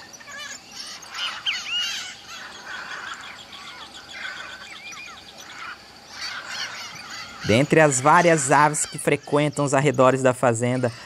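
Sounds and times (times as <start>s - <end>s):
fast series of high bird notes: 0.0s - 11.0s
wild birds calling: 0.0s - 11.0s.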